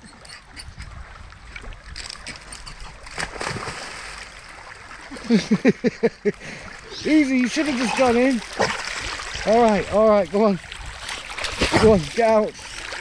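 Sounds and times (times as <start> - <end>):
river water running: 0.0 - 13.0
dog splashing in water: 3.0 - 4.2, 7.5 - 9.6, 11.0 - 12.1.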